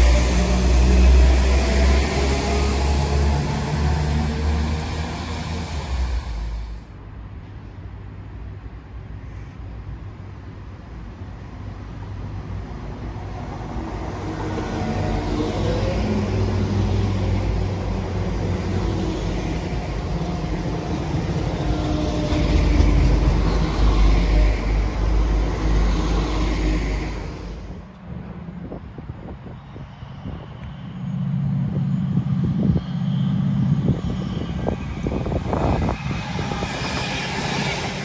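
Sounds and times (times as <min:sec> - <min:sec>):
diesel train passing: 0:00.0 - 0:38.0.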